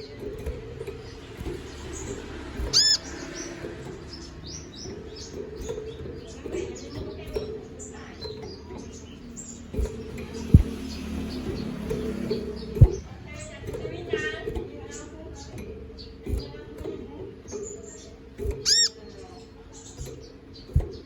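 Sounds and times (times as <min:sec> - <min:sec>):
bird singing high chirps: 0:00.0 - 0:13.5, 0:17.5 - 0:21.0
sharp knocks: 0:09.7 - 0:13.1.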